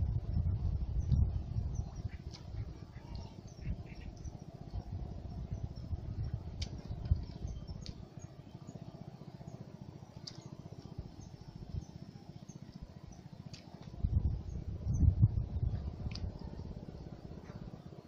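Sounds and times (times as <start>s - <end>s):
steady low rumble: 0.0s - 18.0s
small bird chirping: 1.0s - 8.8s.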